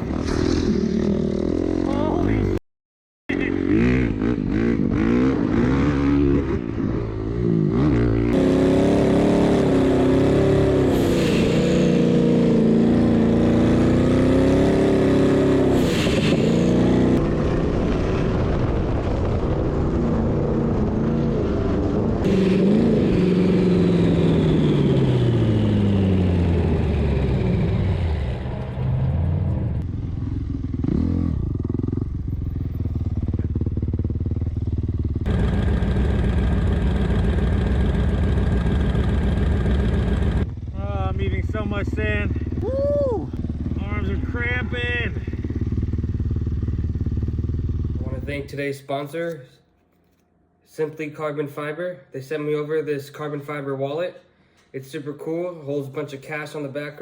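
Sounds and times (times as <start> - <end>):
dirt bike engine revving: 3.3 - 17.6, 20.5 - 48.4.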